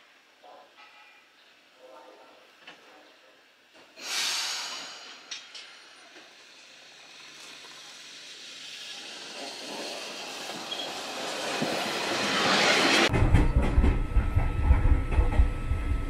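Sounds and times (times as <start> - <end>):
train brakes hissing air: 4.0 - 13.1
train running gear: 5.0 - 16.0.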